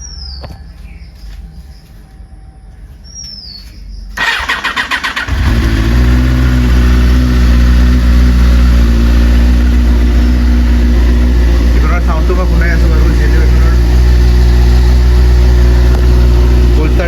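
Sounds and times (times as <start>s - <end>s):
electric starter cranking: 4.2s - 6.4s
motorcycle engine idling: 4.2s - 17.0s.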